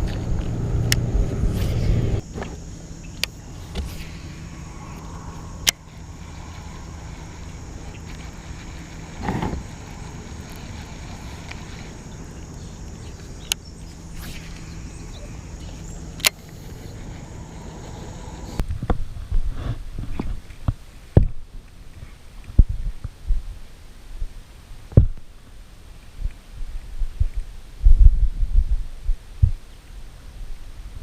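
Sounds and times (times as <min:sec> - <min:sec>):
electric motor humming: 0:00.0 - 0:18.6
short rush: 0:03.4 - 0:13.4.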